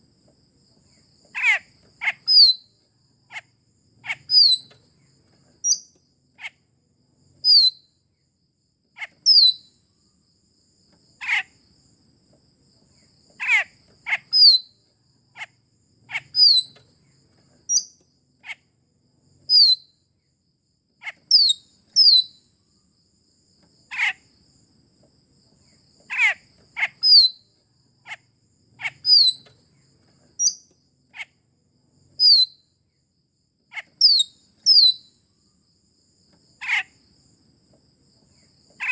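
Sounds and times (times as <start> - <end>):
starling calls: 1.4 - 2.5, 4.0 - 4.7, 13.4 - 14.6, 16.1 - 16.8, 26.1 - 27.3, 28.8 - 29.5.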